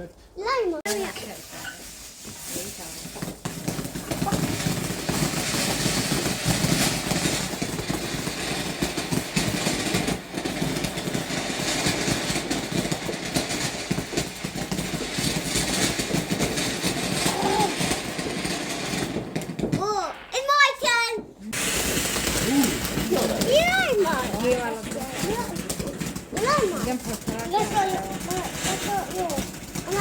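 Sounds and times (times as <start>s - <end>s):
firework hissing and crackling: 0.9s - 30.0s.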